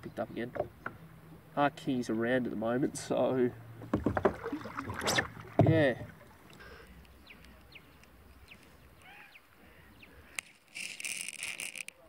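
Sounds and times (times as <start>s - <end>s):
bird chirps: 6.6s - 10.4s
rasping noise: 10.4s - 12.0s.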